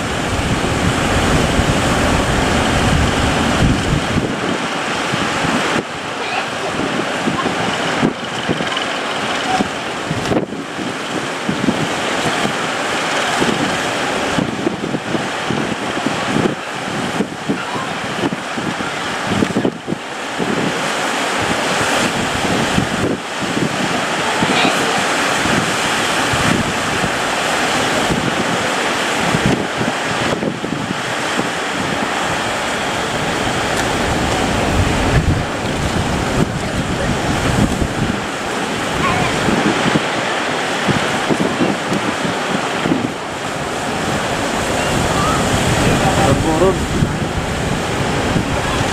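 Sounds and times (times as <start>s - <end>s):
sea waves breaking: 0.0s - 48.9s
wind buffeting microphone: 0.0s - 48.9s.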